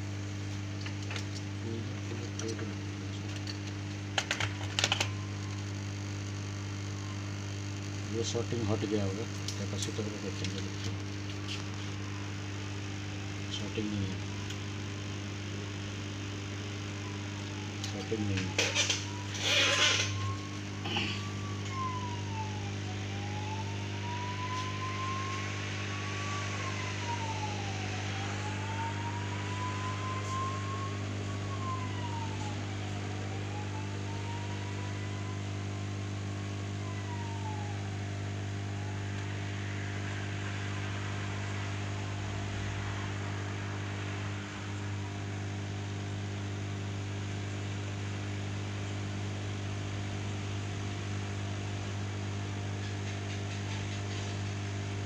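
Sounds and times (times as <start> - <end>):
electrical hum with hiss: 0.0 - 55.0
distant siren wailing: 4.7 - 5.8, 8.1 - 12.4, 13.0 - 15.4, 17.0 - 46.7.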